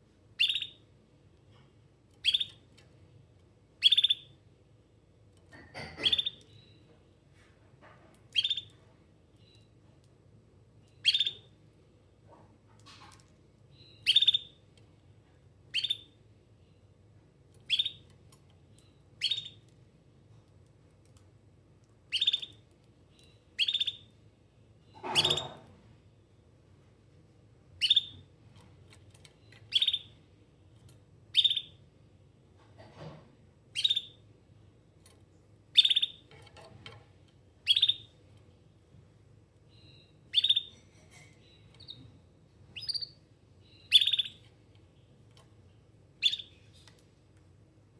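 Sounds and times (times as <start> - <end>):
canary chirping: 0.3 - 0.9, 2.1 - 2.8, 3.8 - 4.4, 5.5 - 6.9, 8.2 - 9.8, 10.8 - 11.6, 12.8 - 14.8, 15.6 - 16.9, 17.5 - 19.8, 22.0 - 24.2, 24.9 - 25.8, 27.7 - 31.9, 33.7 - 34.3, 35.0 - 38.5, 39.6 - 47.0.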